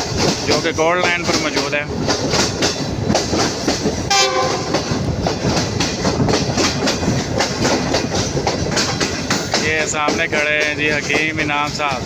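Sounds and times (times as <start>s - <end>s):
train wheels clattering over rails: 0.0s - 12.0s
train horn blast: 4.1s - 4.8s.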